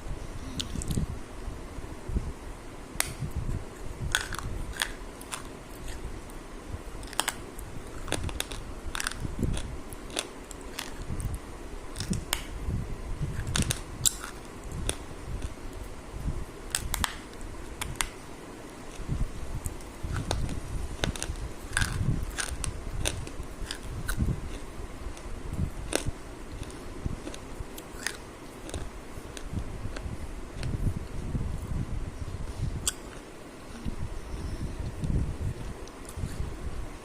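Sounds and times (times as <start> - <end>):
mouth smacks and clicks: 0.4 - 1.0, 32.8 - 34.0
person chewing and biting: 4.1 - 6.1, 18.9 - 24.7, 25.9 - 30.8.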